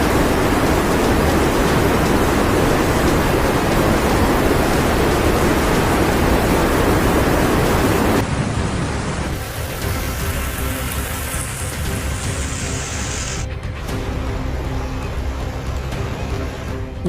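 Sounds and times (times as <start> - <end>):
water rushing loudly: 0.0 - 17.0.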